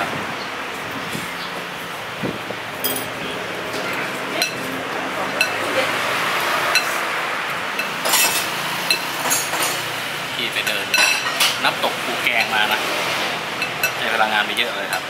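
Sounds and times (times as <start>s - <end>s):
restaurant background noise: 0.0s - 15.0s
spoon clinking against a bowl: 2.8s - 3.2s.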